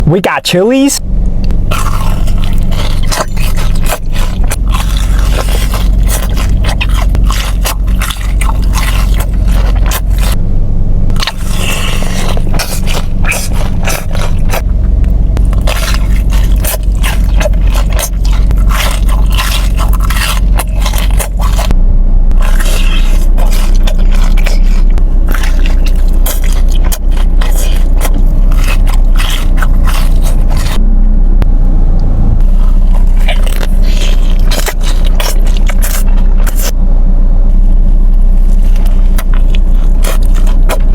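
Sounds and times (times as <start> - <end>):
steady low hum: 0.0 - 40.9
crunching and chewing fried food: 0.5 - 10.4, 11.1 - 30.8, 32.4 - 36.8, 37.5 - 40.9.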